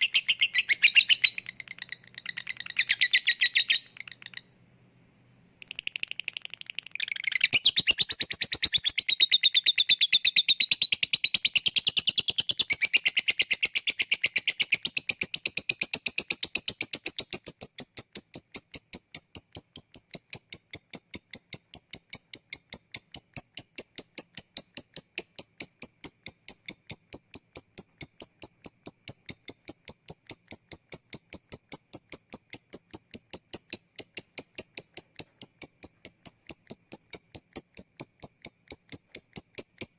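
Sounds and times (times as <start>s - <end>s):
lovebird chattering trill: 0.0s - 4.6s, 5.6s - 39.9s.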